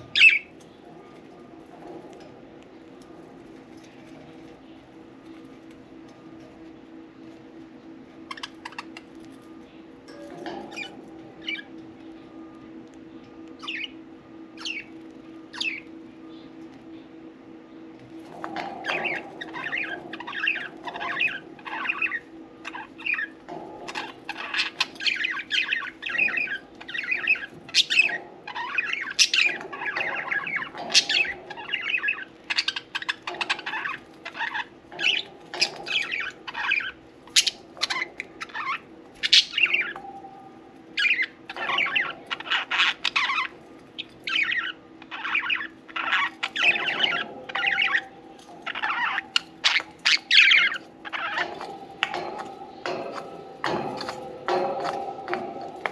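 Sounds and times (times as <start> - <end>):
budgerigars chirping: 0.0 - 0.6, 8.3 - 9.1, 13.6 - 14.0, 14.6 - 15.9, 18.4 - 40.1, 41.0 - 55.9
steady low hum: 0.0 - 55.9.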